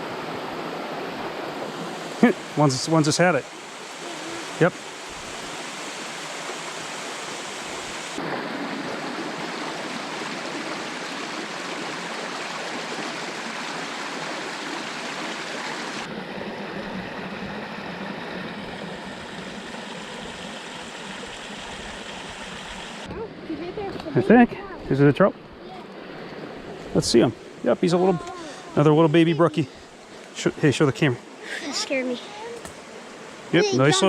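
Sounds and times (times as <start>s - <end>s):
creek water rushing: 0.0s - 34.0s.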